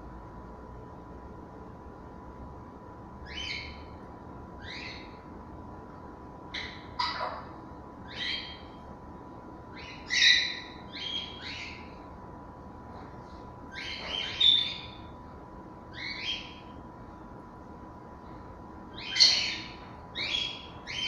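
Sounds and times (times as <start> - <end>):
parrots calling: 6.5 - 8.8, 9.8 - 12.0, 13.7 - 15.0, 15.9 - 16.7, 19.0 - 21.0.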